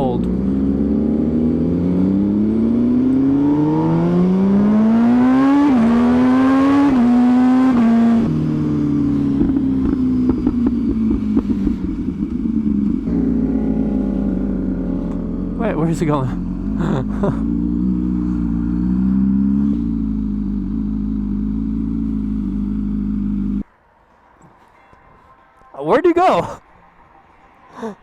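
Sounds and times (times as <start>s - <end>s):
motorcycle engine accelerating: 0.0s - 23.7s
exhaust pops: 9.3s - 17.2s.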